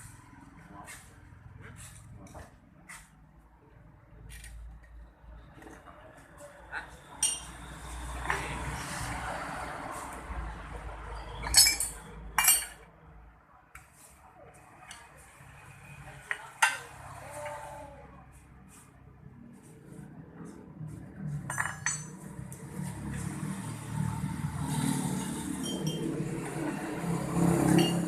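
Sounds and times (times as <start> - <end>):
metal tools clinking: 7.2 - 7.5, 11.2 - 12.8, 21.5 - 22.2, 25.5 - 26.2.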